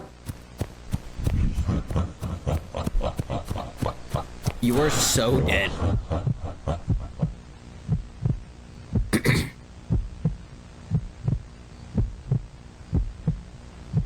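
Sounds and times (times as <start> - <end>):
heartbeat double thump: 5.8 - 14.0.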